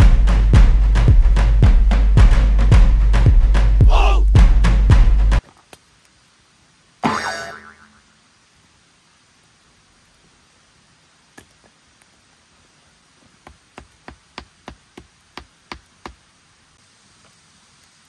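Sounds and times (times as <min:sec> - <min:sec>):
sharp knocks on wood: 0:13.4 - 0:16.2.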